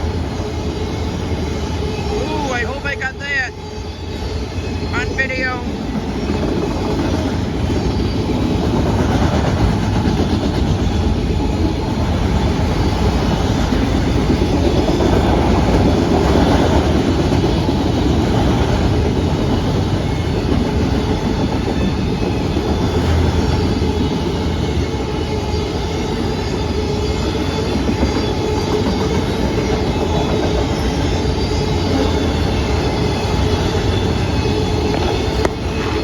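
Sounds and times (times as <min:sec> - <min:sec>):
freight train wheels rumbling: 0:00.0 - 0:36.0.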